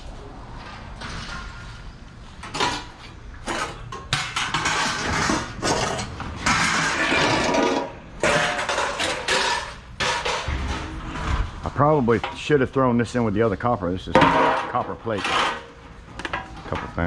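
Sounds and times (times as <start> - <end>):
metal scrap clanking: 2.4 - 12.6, 14.1 - 17.0.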